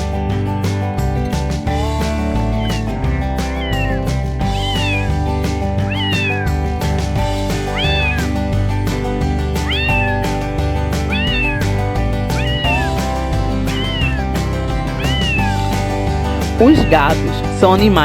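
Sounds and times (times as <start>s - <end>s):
background music with steady beat: 0.0s - 18.0s
cat meowing: 2.4s - 6.8s, 7.5s - 8.4s, 9.5s - 16.0s.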